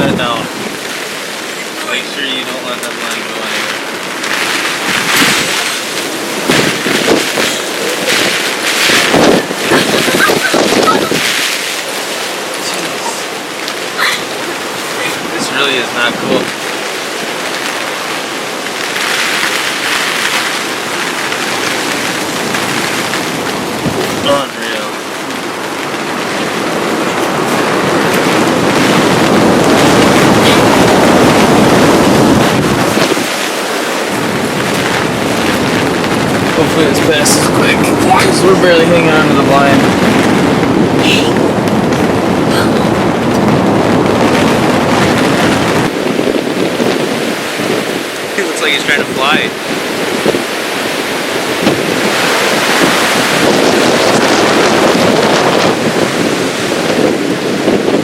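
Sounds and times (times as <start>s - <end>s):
rain: 0.0s - 58.0s
storm wind roaring: 0.0s - 58.0s
wind buffeting microphone: 0.0s - 58.0s
fabric rattling and flapping: 3.0s - 15.4s, 16.3s - 48.2s.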